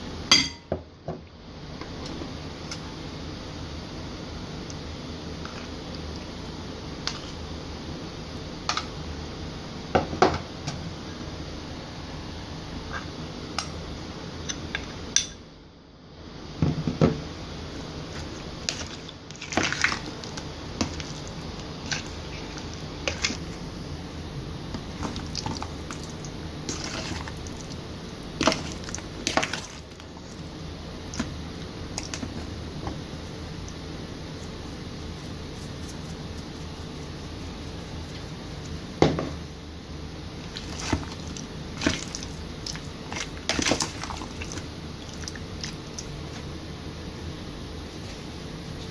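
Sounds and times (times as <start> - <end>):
steady background hiss: 0.0 - 48.9
utensils and dishes clinking: 0.3 - 0.7.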